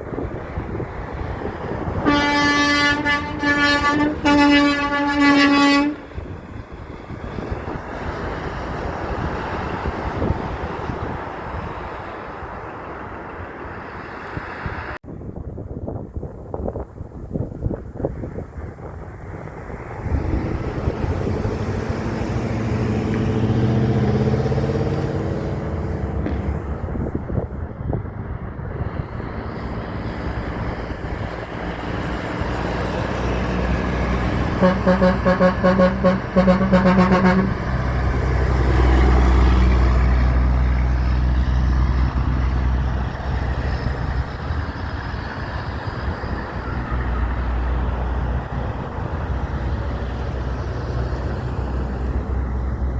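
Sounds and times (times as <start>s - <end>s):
deep rumble of passing truck: 0.0s - 52.9s
heavy trucks passing: 0.0s - 52.9s
truck air horn blasts: 1.9s - 6.3s, 34.2s - 38.2s.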